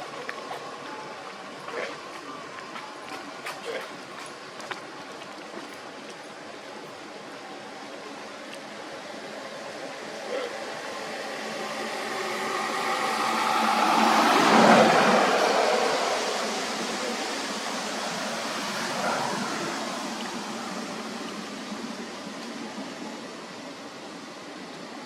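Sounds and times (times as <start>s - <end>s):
vehicle passing by: 10.6s - 22.0s.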